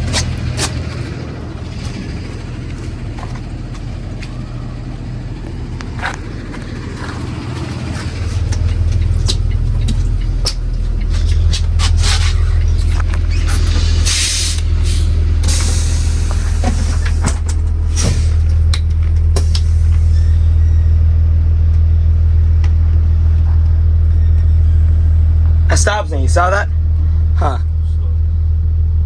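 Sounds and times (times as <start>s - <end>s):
bus engine idling: 0.0s - 29.0s
air hiss: 13.5s - 17.0s.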